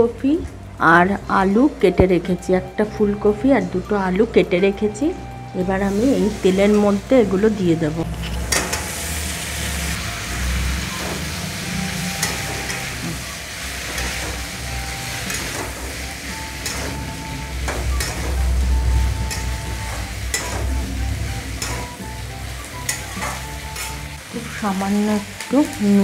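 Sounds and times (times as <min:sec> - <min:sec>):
vegetables sizzling in oil: 0:05.8 - 0:26.0
metal spatula scraping pan: 0:08.0 - 0:24.2
low steady rumble: 0:16.6 - 0:23.1.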